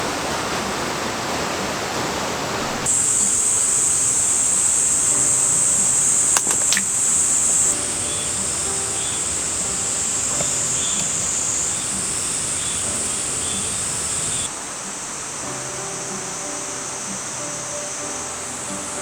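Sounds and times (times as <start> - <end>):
rain hissing: 0.0 - 19.0
cicadas buzzing: 2.2 - 19.0
sharp clicks: 6.2 - 8.8.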